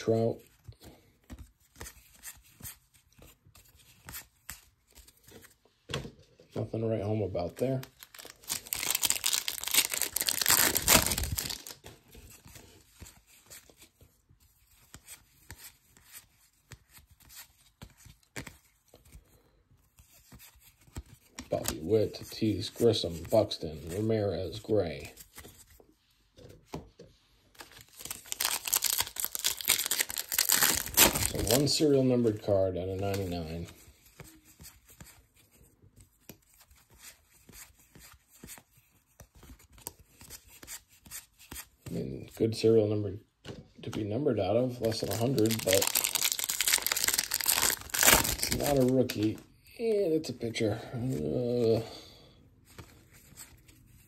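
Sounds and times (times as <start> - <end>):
cards clicking and rustling: 0.6 - 6.1, 7.5 - 25.8, 27.5 - 32.4, 33.0 - 41.9, 44.7 - 49.4, 52.7 - 53.9
foil wrapper tearing: 7.9 - 11.8, 27.9 - 31.7, 44.9 - 49.3.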